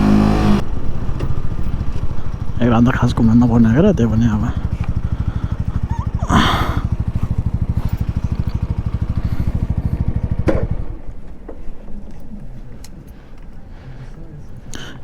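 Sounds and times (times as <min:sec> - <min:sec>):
engine knock: 0:00.0 - 0:11.2
motorcycle engine idling: 0:00.0 - 0:11.6.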